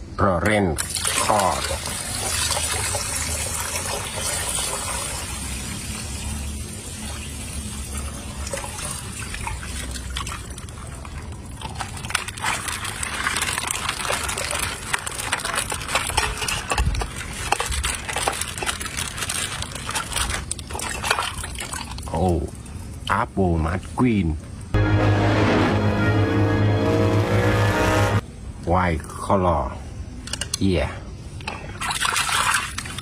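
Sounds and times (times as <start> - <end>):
water gushing: 0.8 - 15.9.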